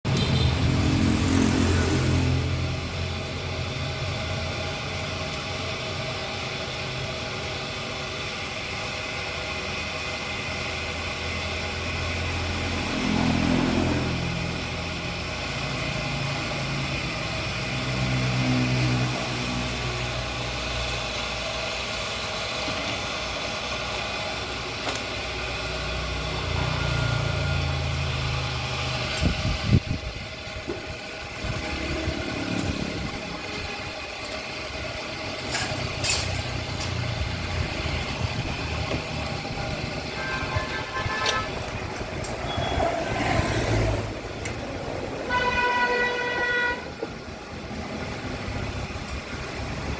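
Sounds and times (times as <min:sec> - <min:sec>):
engine revving: 0:00.1 - 0:05.6, 0:11.0 - 0:21.0, 0:25.4 - 0:46.6.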